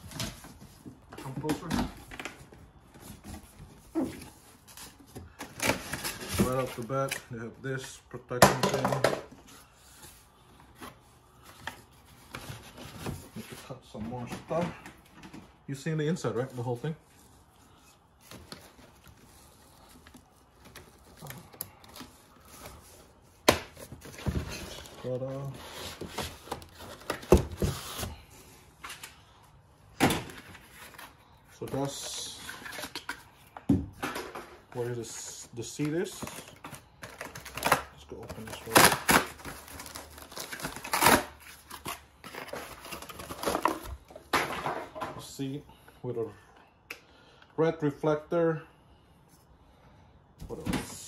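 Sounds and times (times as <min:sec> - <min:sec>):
plastic and paper crinkling: 0:34.7 - 0:44.2
packaging clicks and rustles: 0:35.7 - 0:44.1.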